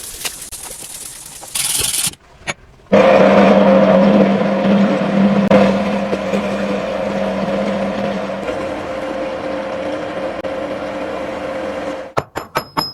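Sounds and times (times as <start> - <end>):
power tool motor running: 2.9 - 12.1
grinding noise: 2.9 - 12.2.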